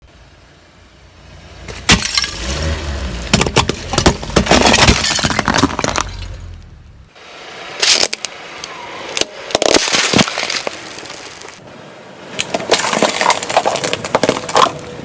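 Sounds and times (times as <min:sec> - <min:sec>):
car rumble: 0:00.0 - 0:15.0
tyre crushing brittle objects: 0:01.7 - 0:06.6, 0:09.2 - 0:11.6, 0:12.4 - 0:14.9
sharp crack: 0:01.7 - 0:07.2, 0:07.8 - 0:11.6.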